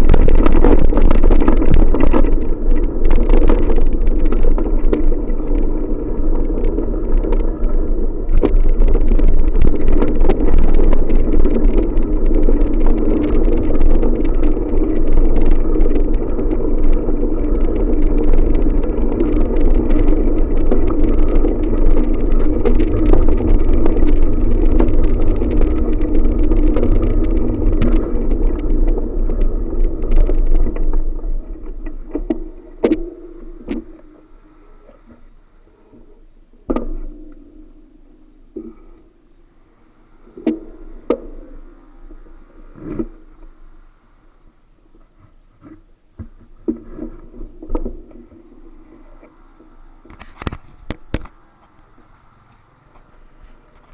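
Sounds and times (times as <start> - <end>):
small knocks and rattles: 0.0 - 35.2
wind buffeting microphone: 0.0 - 35.4
tyres on road: 0.0 - 53.9.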